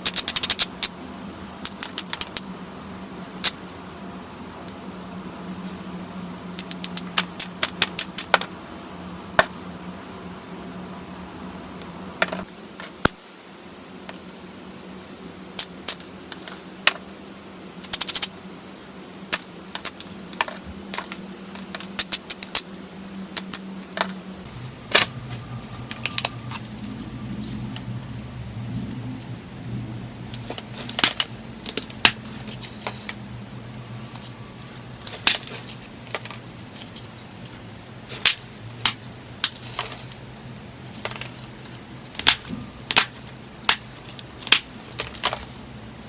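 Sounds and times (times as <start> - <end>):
low rumble: 24.4 - 35.1
stone flakes clicking and snapping: 38.2 - 45.5.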